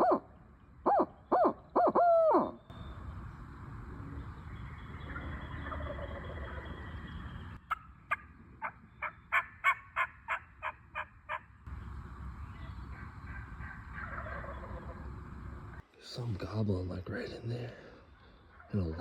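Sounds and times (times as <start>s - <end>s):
turkey yelping: 0.0s - 0.3s, 0.9s - 2.6s, 5.1s - 6.7s, 7.6s - 11.5s, 12.9s - 15.1s.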